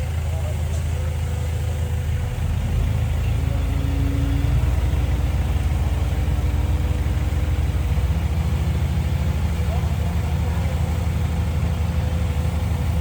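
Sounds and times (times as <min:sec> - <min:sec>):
bulldozer diesel engine rumbling: 0:00.0 - 0:13.0.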